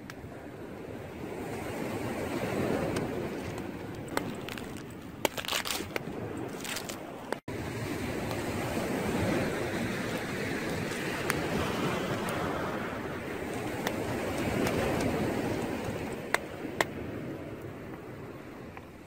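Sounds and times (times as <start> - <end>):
wind on microphone: 0.0 - 19.0
corn kernels crackling and popping: 4.1 - 7.0.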